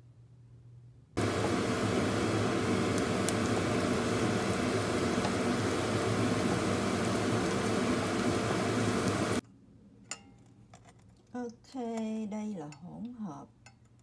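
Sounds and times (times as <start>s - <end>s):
low hum: 1.2s - 9.4s
shallots sizzling in hot oil: 1.2s - 9.4s.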